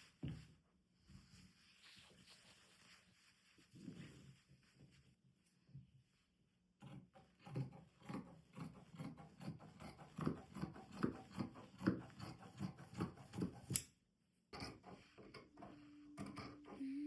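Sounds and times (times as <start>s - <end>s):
fabric rustling: 0.0s - 5.5s.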